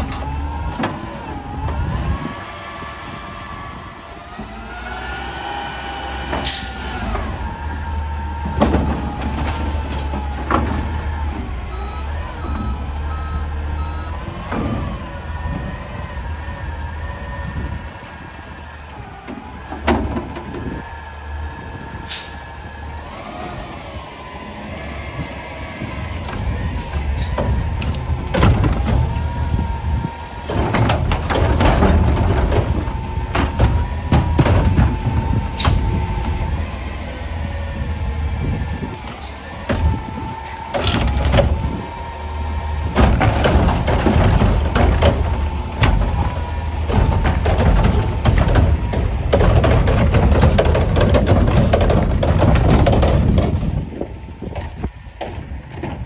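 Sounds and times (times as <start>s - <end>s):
diesel engine running: 0.0s - 56.0s
metal clanks and bangs: 26.2s - 37.0s, 39.6s - 56.0s.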